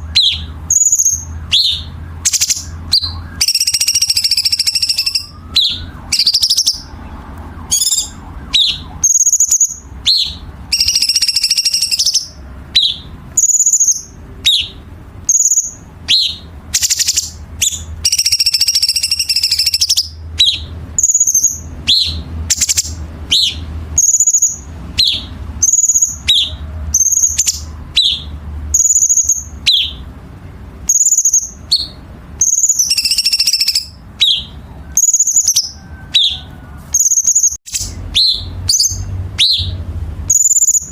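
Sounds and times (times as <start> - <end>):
bird harsh raspy phrases: 0.0 - 7.1, 7.8 - 30.1
bird whistling sharp high notes: 0.0 - 7.1, 7.7 - 30.0, 30.9 - 40.9.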